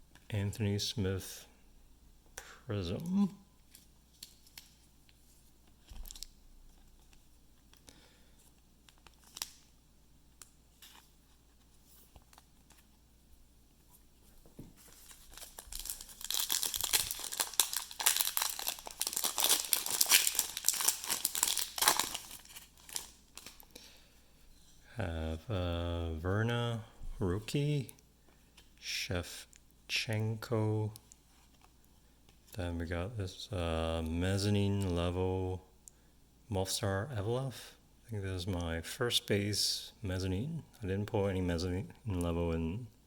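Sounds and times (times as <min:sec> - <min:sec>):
wrapper tearing and crinkling: 0:14.9 - 0:23.6.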